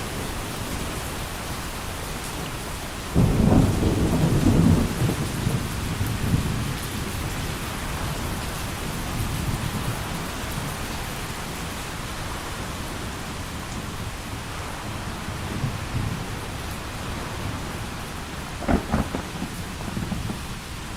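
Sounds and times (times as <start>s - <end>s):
heavy rain pouring: 0.0s - 20.9s
low rumble of thunder: 3.1s - 10.8s, 12.6s - 20.9s.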